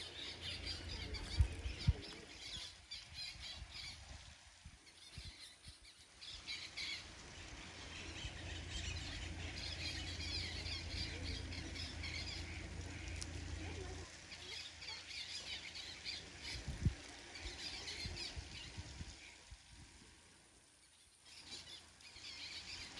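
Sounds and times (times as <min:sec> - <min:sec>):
birds squawking: 0:00.0 - 0:03.0, 0:06.5 - 0:16.8
low rumble: 0:07.5 - 0:14.2.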